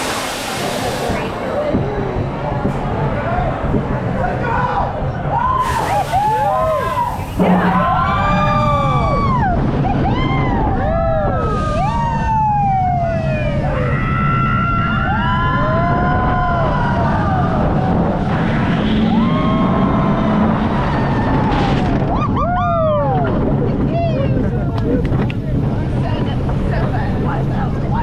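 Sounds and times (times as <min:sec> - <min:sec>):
rumble of wind and ride: 0:00.0 - 0:28.0
riders screaming: 0:05.4 - 0:18.4, 0:19.0 - 0:23.3.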